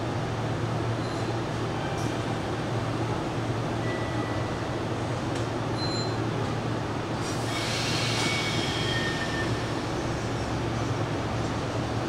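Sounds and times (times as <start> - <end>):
train running hum: 0.0 - 12.0
high-pitched train squeals: 7.2 - 10.9.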